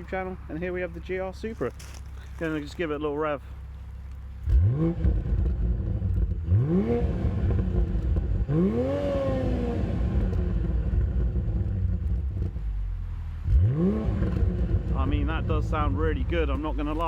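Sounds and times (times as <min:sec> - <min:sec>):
car engine revving from idle: 0:04.0 - 0:17.0.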